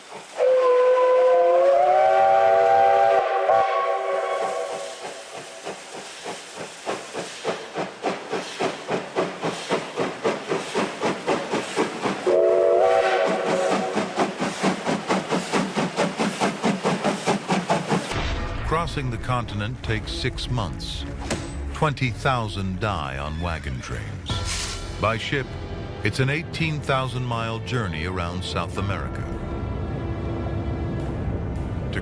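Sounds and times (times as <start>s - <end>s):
steam locomotive chime whistle: 0.4s - 5.1s, 12.3s - 14.1s.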